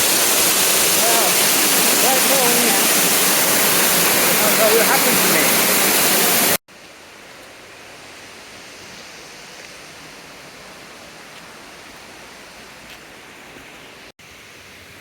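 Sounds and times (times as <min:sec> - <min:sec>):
flowing water: 0:00.0 - 0:15.0
waterfall rushing: 0:00.0 - 0:15.0.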